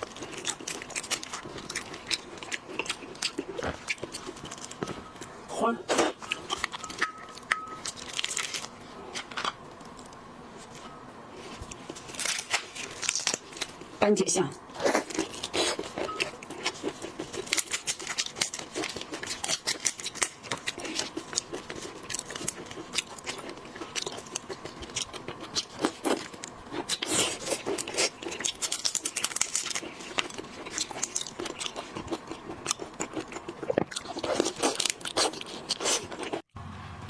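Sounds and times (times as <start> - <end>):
chewing and biting: 0.0 - 5.1, 5.9 - 10.8, 14.7 - 36.5
seafood shells cracking: 6.3 - 9.9, 11.8 - 13.9, 15.0 - 36.5.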